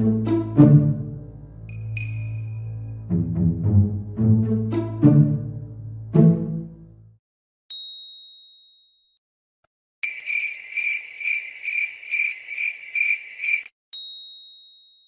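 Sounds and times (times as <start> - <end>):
bright ding: 1.7 - 2.8, 14.0 - 15.0.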